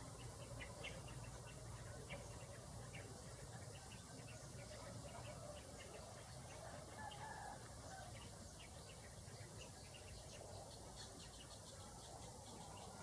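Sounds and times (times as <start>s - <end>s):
faint bird chirps: 0.0s - 13.0s
low background hiss: 0.0s - 13.0s.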